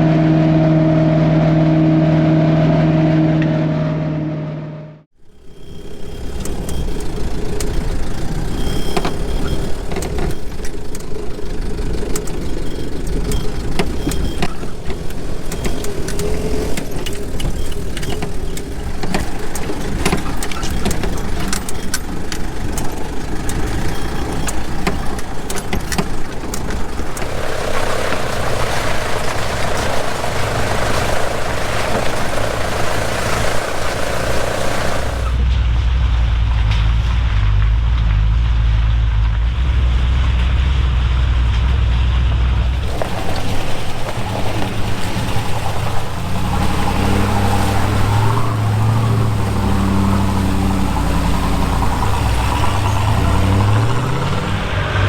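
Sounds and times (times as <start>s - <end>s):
vehicle engine rattling: 5.1s - 55.0s
rushing noise: 5.2s - 35.4s, 42.6s - 55.0s.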